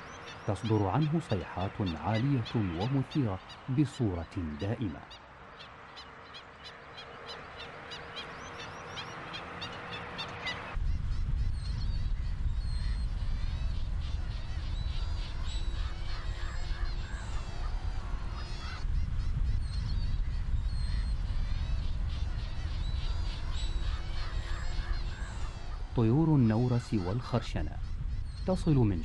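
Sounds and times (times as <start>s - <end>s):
birds yapping calls: 0.0s - 29.0s
scattered bird calls: 0.0s - 29.0s
wind rumble on microphone: 10.4s - 29.0s.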